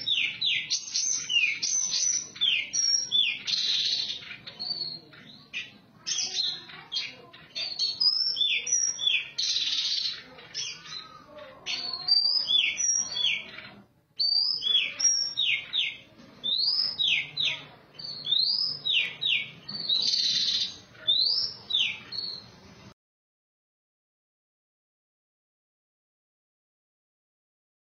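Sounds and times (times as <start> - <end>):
bird singing whistled notes: 7.7 - 10.8, 14.2 - 17.4, 18.0 - 22.4.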